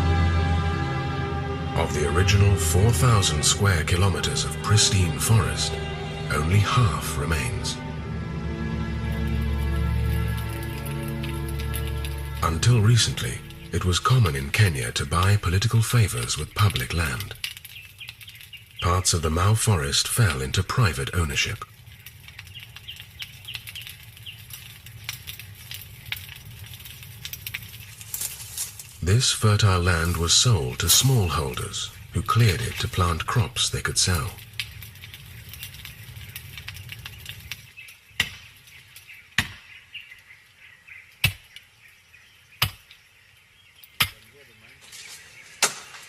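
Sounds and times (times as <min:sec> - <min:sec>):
steady low rumble: 0:00.0 - 0:17.4.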